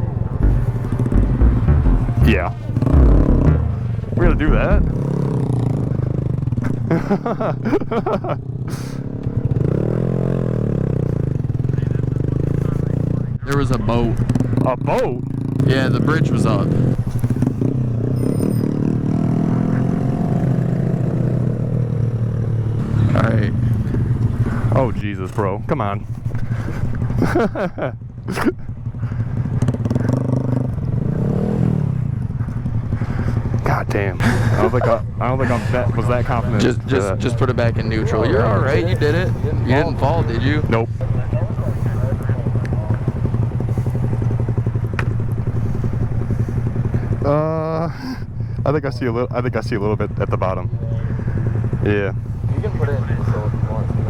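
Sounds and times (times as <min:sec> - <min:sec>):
person speaking: 0:00.4 - 0:05.0
motorcycle engine revving: 0:09.3 - 0:24.5.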